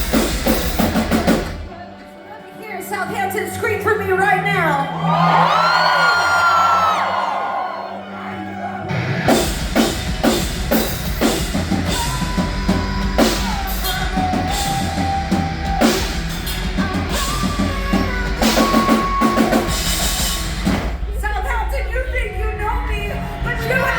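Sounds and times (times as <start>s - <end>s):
drum kit beat: 0.0s - 1.7s, 9.2s - 23.9s
live rock band playing: 0.0s - 5.1s, 8.8s - 21.2s
low bass line: 9.4s - 23.9s.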